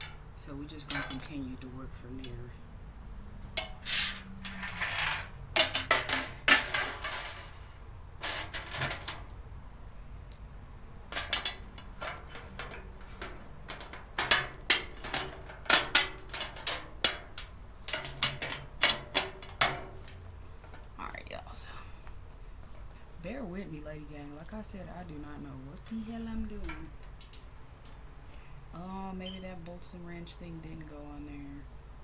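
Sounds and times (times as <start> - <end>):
metal parts clinking: 0.0 - 1.6, 3.6 - 7.6, 8.2 - 9.3, 11.1 - 20.9, 26.1 - 28.0.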